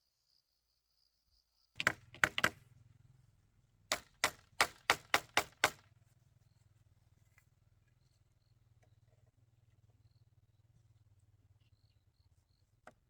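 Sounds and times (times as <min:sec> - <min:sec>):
hand tool striking bamboo: 0:01.8 - 0:02.6, 0:03.9 - 0:05.8.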